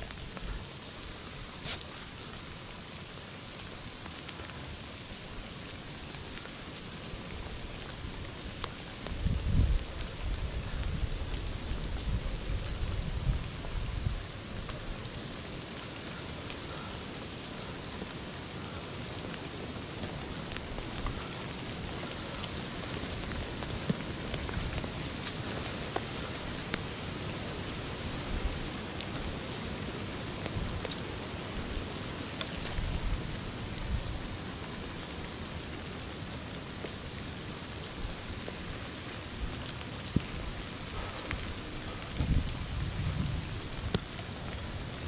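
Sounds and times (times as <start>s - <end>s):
rain pattering on woods and clothing: 0.0s - 45.0s.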